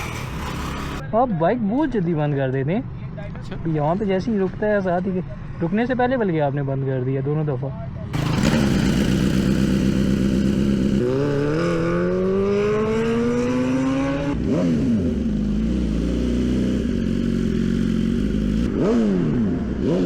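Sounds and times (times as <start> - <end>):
motorcycle engine revving: 0.0 - 1.0, 8.1 - 20.0.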